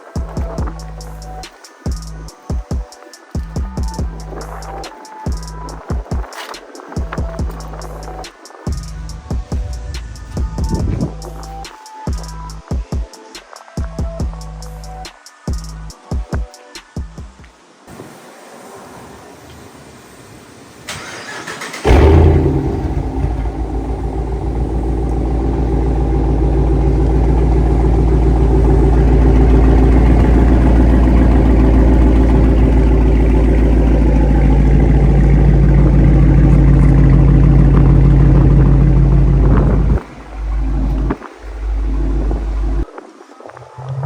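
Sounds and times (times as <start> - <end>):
car engine starting and idling: 18.9 - 42.9
starter motor cranking: 20.9 - 40.0.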